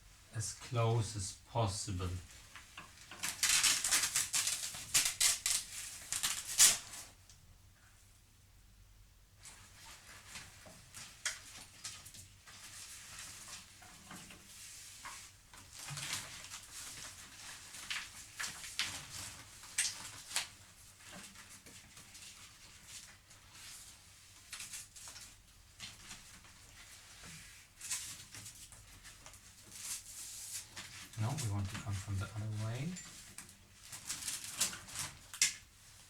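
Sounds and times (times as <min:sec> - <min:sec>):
light clicks taps and rustles: 0:09.4 - 0:23.7.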